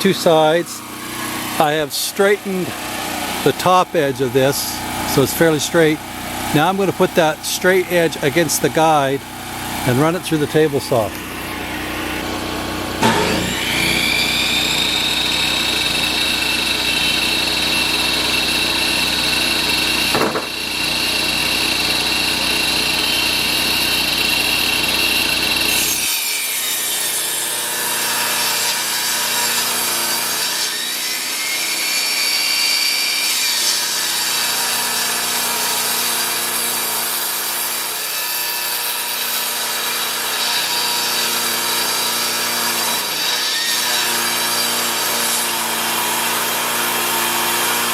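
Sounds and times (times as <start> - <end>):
table saw motor whine: 0.0 - 47.9
saw blade ripping board: 12.9 - 47.9.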